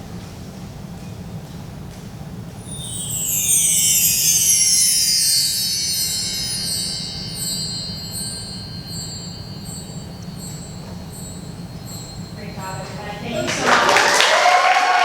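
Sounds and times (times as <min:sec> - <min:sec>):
metal chimes glissando: 0:02.6 - 0:14.1.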